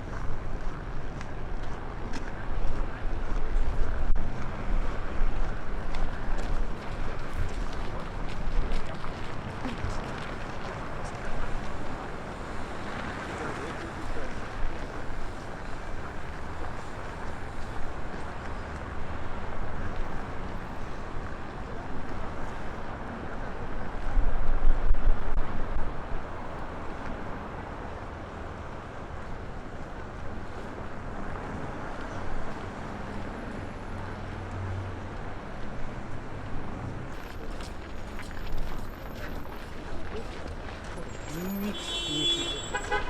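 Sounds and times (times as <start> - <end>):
blizzard wind buffeting microphone: 0.0 - 33.9.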